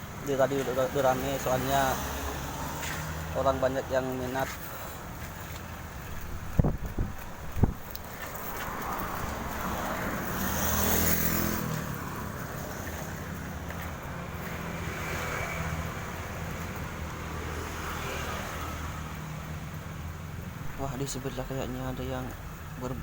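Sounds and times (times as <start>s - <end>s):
vehicles passing: 0.0s - 23.0s.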